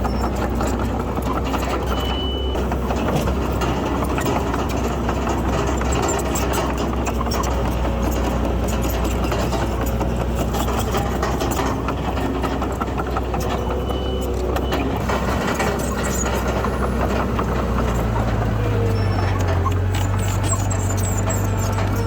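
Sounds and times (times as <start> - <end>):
small clicks and rattles: 0.0 - 14.8
diesel machinery engine drone: 0.0 - 22.0.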